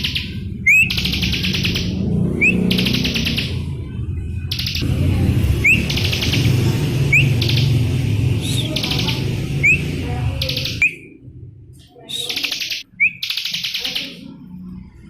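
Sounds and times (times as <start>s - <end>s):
bird whistle and buzzy trill: 0.0s - 3.6s, 5.6s - 11.2s, 12.1s - 14.2s.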